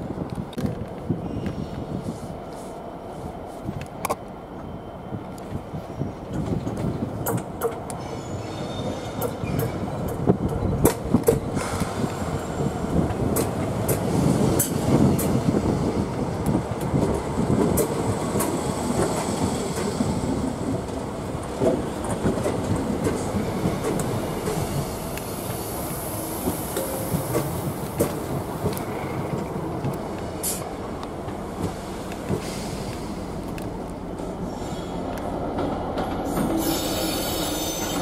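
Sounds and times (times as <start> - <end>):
train wheel rumble: 0.0 - 38.0
wheels clicking over rail joints: 16.4 - 25.3.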